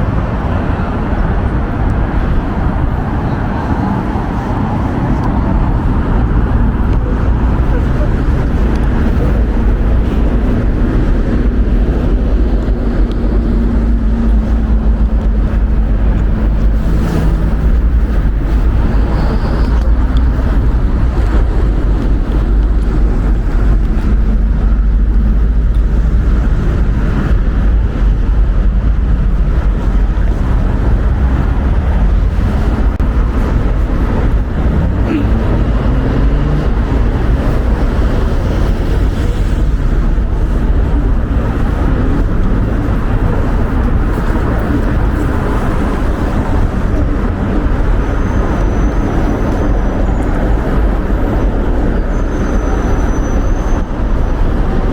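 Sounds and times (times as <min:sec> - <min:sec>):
faint vehicle engines running: 0:00.0 - 0:54.9
wind buffeting microphone: 0:00.0 - 0:54.9.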